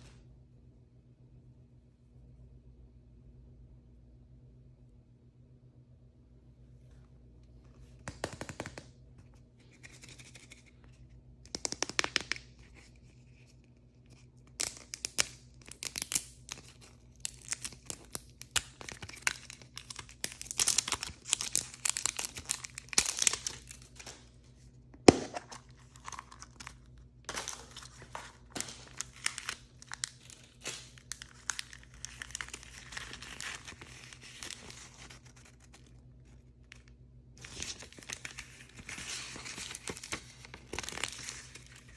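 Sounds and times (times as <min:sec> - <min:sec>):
plastic packaging tearing and crinkling: 0:14.1 - 0:24.2, 0:25.1 - 0:41.9.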